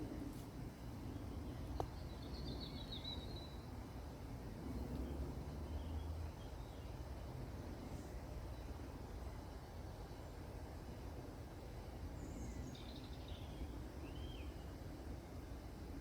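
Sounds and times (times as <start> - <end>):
low outdoor rumble: 0.0 - 16.0
songbird twittering: 1.0 - 3.7, 12.2 - 14.7.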